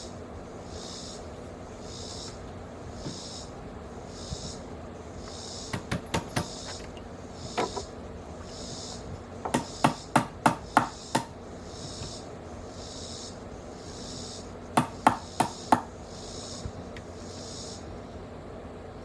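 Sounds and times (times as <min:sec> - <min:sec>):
hammer driving nails into wood: 0:05.7 - 0:06.9, 0:09.5 - 0:11.3, 0:14.8 - 0:15.9.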